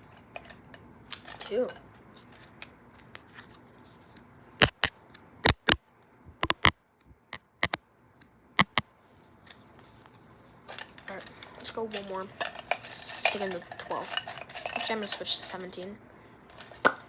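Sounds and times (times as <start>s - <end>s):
sticks clicking: 4.6s - 5.8s, 6.4s - 6.8s, 7.4s - 7.8s, 8.6s - 8.8s.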